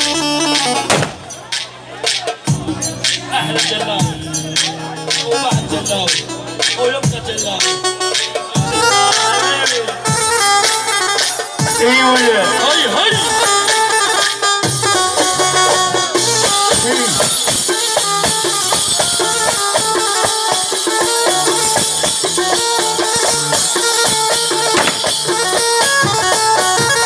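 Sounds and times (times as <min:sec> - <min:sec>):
instrumental melody: 0:00.0 - 0:27.0
hand percussion: 0:13.3 - 0:27.0.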